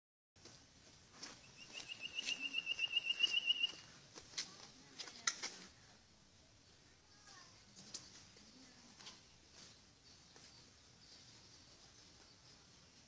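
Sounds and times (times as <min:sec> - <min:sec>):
bird trilling: 0:01.5 - 0:03.9.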